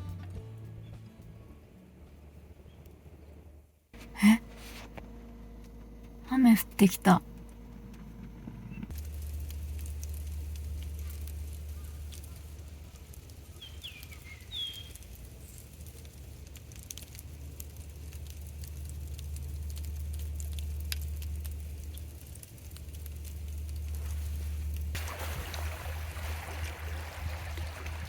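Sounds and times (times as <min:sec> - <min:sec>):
raindrops pattering: 0:08.9 - 0:28.0
low rumble: 0:17.0 - 0:28.0.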